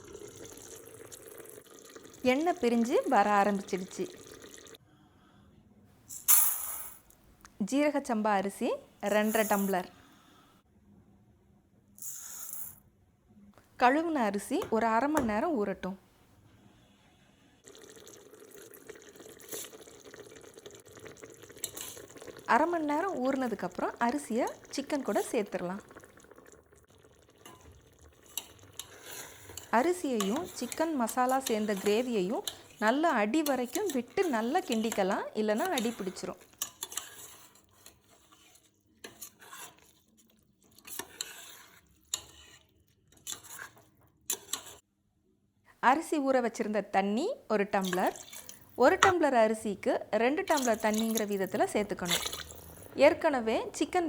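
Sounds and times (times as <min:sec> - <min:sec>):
water splashing and trickling: 0:00.0 - 0:04.8, 0:17.6 - 0:36.3, 0:50.5 - 0:53.0
ladle scraping pot bottom: 0:27.1 - 0:40.1, 0:40.7 - 0:44.8, 0:47.8 - 0:49.4, 0:50.4 - 0:53.2.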